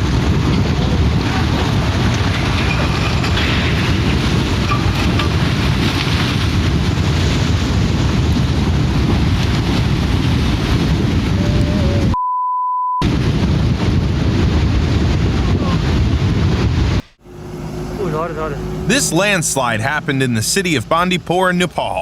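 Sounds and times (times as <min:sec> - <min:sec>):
steady beep tone: 0:12.2 - 0:13.0.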